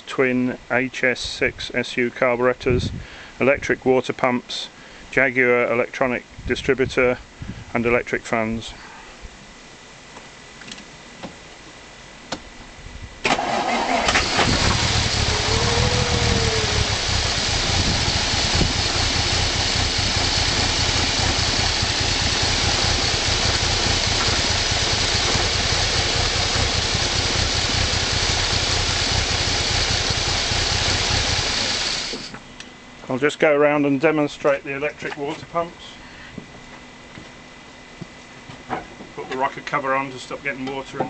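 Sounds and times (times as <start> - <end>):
engine cranking on starter: 13.2 - 32.4
engine running steadily: 13.2 - 33.1.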